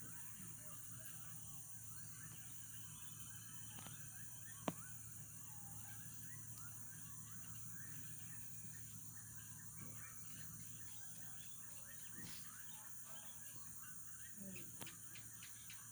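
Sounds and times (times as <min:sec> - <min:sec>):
birds chirping chorus: 0:00.0 - 0:15.9.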